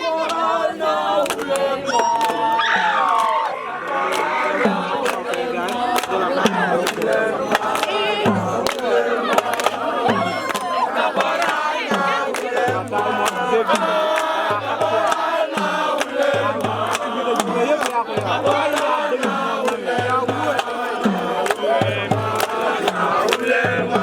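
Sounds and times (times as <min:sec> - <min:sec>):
men chanting and singing: 0:00.0 - 0:24.0
low drum beat: 0:02.4 - 0:14.0, 0:19.9 - 0:24.0.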